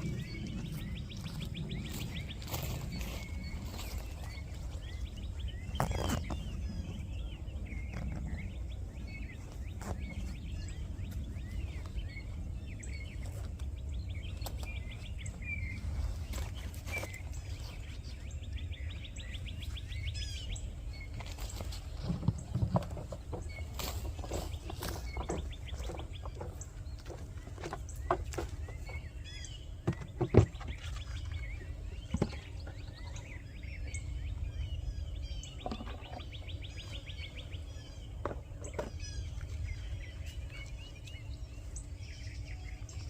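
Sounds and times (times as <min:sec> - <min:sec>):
steady low rumble: 0:00.0 - 0:29.8
songbirds chirping and trilling: 0:00.0 - 0:43.0.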